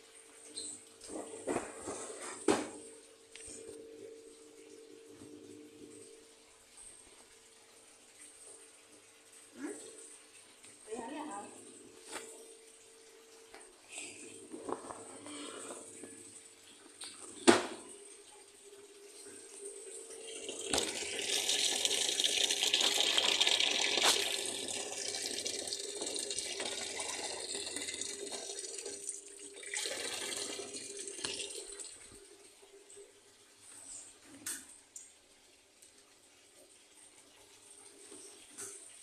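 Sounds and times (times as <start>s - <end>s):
water running from a tap: 16.2s - 33.2s.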